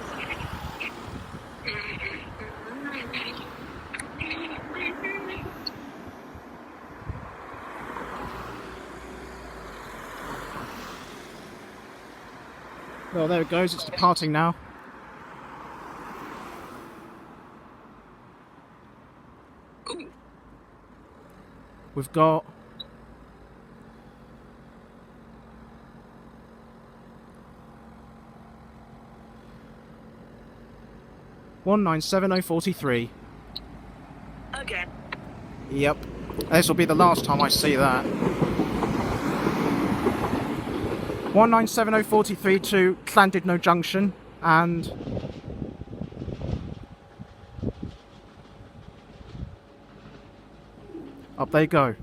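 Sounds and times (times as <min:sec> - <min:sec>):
wind on microphone: 0:00.1 - 0:04.7, 0:07.0 - 0:07.4, 0:44.9 - 0:48.0
train engine running: 0:29.2 - 0:52.0.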